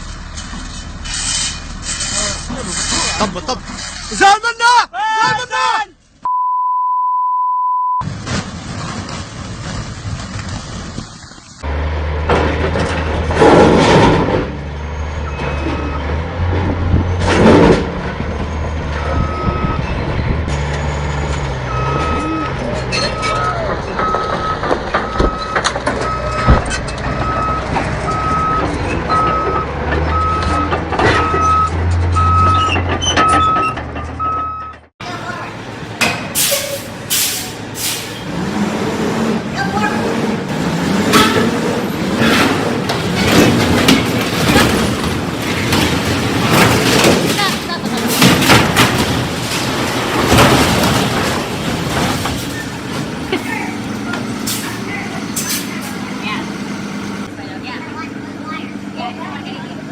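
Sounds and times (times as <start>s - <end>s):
heavy vehicle engine running: 0.0s - 4.1s, 8.0s - 59.9s
reversing alarm beeping: 21.7s - 22.4s, 27.2s - 34.8s
train rumbling and clattering: 23.5s - 33.2s, 38.0s - 57.3s.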